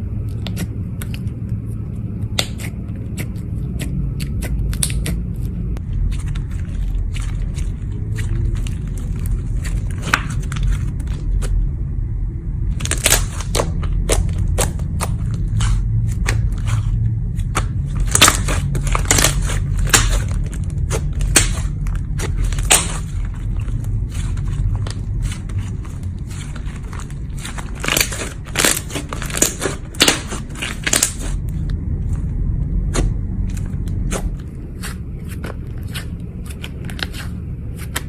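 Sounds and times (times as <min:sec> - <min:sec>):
low rumble: 0:00.0 - 0:38.0
slime squished popping: 0:17.4 - 0:23.4.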